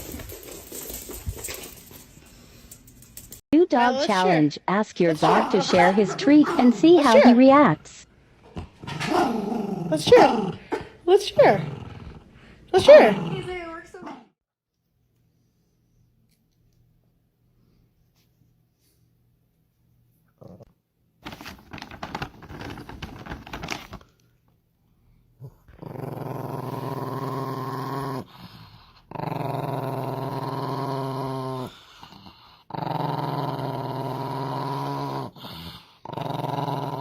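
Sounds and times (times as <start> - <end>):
dog growling: 5.1 - 7.4, 8.5 - 14.2, 25.4 - 37.0
crackly rustling: 21.2 - 24.2.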